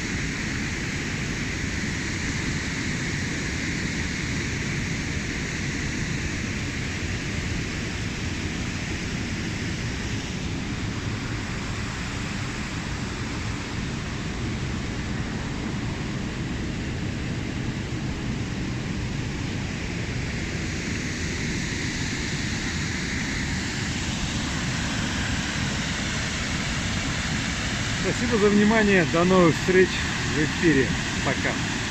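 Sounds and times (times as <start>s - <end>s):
waterfall rushing: 23.7s - 31.9s.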